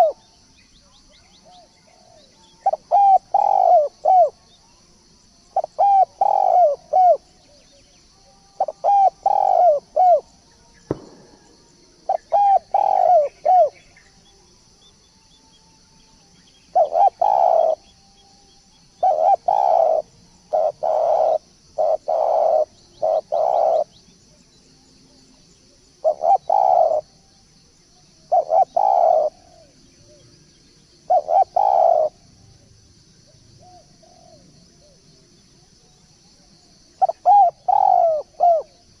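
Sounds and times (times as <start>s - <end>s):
turtledove cooing: 8.6s - 10.2s, 16.8s - 17.8s, 19.0s - 23.9s, 26.0s - 27.0s, 31.1s - 32.2s, 37.0s - 38.7s
sharp knock: 10.9s - 11.8s.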